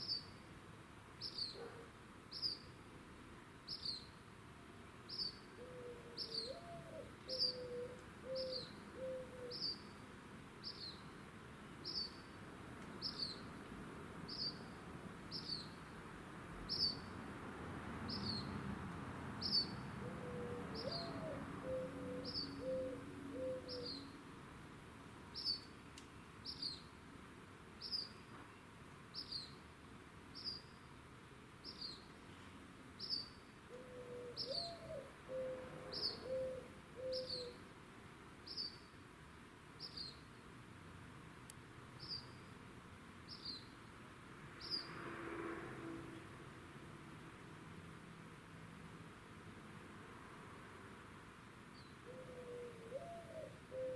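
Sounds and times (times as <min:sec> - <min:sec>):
dove cooing: 0:05.6 - 0:09.7, 0:20.0 - 0:24.0, 0:33.8 - 0:37.6, 0:52.0 - 0:53.9.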